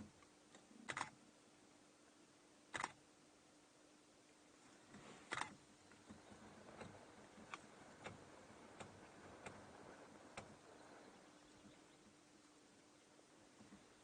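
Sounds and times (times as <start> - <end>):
faint light clicks: 4.9 - 11.8.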